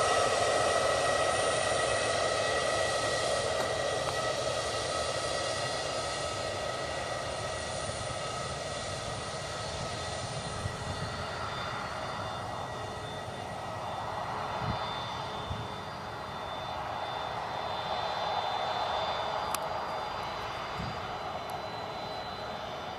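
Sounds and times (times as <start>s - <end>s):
jet engines whining: 0.0s - 22.9s.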